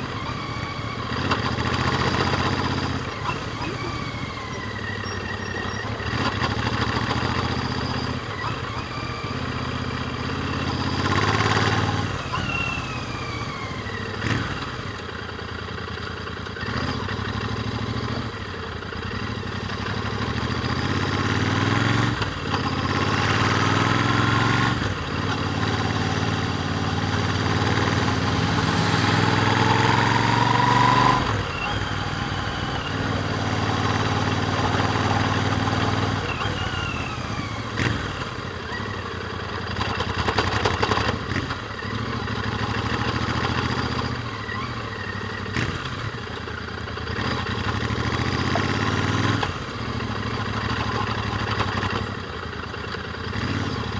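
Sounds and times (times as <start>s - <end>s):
motorcycle engine revving: 0.0s - 53.9s
wind rushing: 27.2s - 33.1s.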